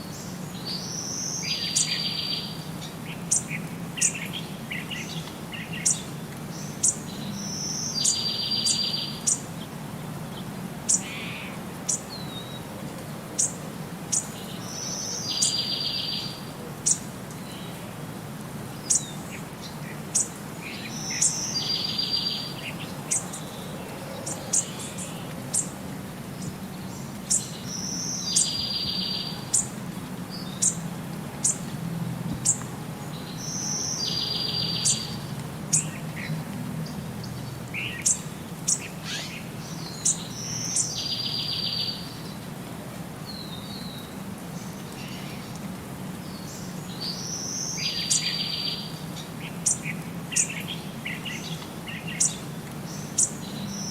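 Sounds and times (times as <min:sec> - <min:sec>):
birds chirping: 0:00.0 - 0:12.7, 0:18.7 - 0:31.7, 0:32.3 - 0:42.5.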